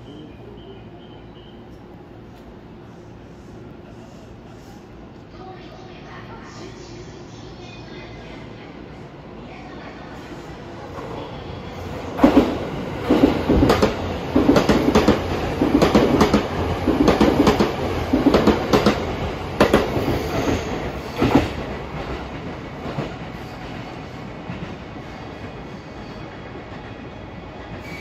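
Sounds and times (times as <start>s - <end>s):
train wheels clacking on rail joints: 12.2s - 23.2s.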